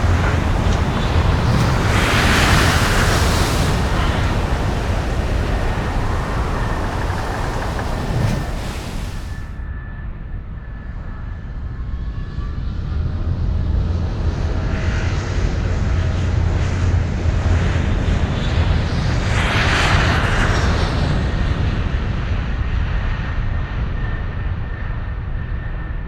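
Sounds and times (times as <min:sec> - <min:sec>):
helicopter rotor and engine: 0:00.0 - 0:09.4
rush of noise: 0:00.0 - 0:09.5.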